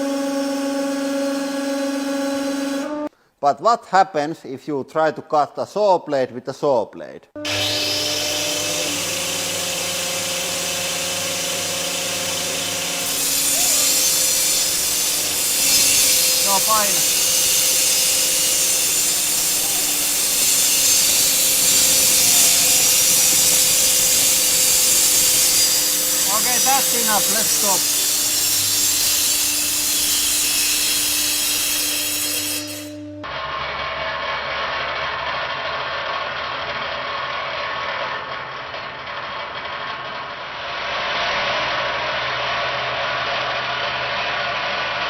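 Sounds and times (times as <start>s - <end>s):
grinder motor hum: 0.0s - 3.1s, 7.4s - 34.2s
high-pitched grinding hiss: 7.4s - 33.1s.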